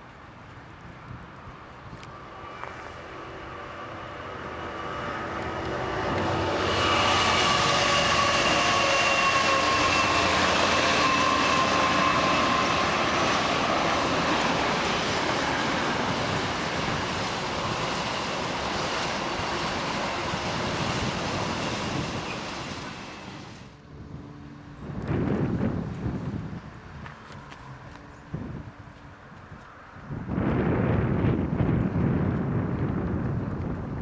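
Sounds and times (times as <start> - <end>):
train rail and engine noise: 0.0 - 34.0
whining tone: 2.3 - 25.7.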